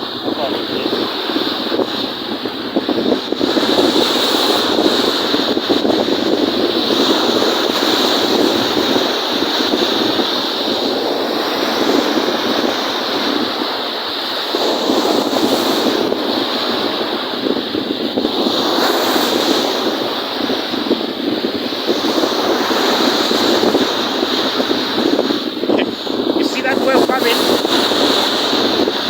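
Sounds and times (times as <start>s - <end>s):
lake waves breaking: 21.7s - 29.0s.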